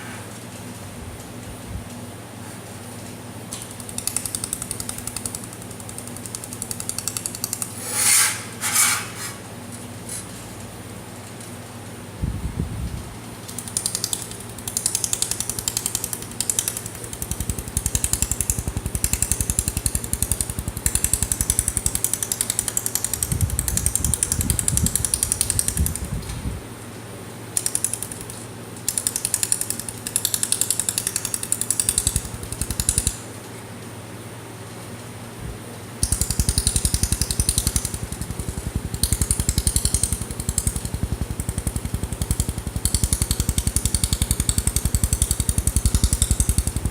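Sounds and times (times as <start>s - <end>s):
steady low hum: 0.0s - 46.9s
laser welder ticking pulses: 3.6s - 8.2s, 13.2s - 26.2s, 27.5s - 33.3s, 36.0s - 46.9s.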